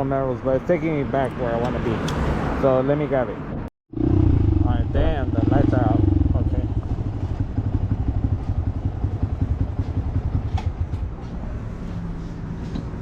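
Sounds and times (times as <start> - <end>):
vehicle engine running: 4.4 - 12.4.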